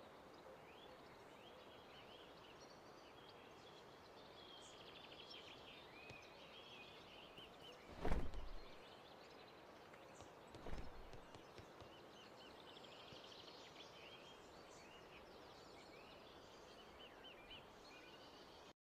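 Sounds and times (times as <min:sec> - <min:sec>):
low steady hiss: 0:00.0 - 0:18.7
low thump: 0:07.9 - 0:08.7.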